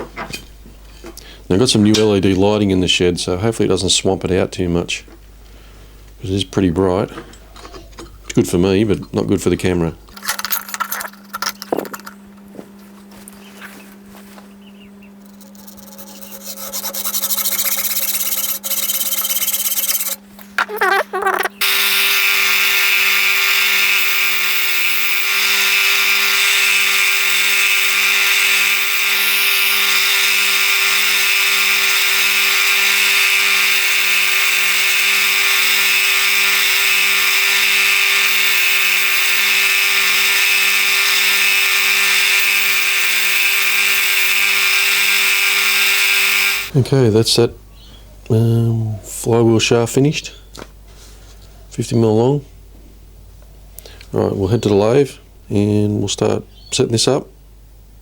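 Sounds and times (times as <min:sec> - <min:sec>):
grinder cutting steel rod: 0:15.2 - 0:46.7.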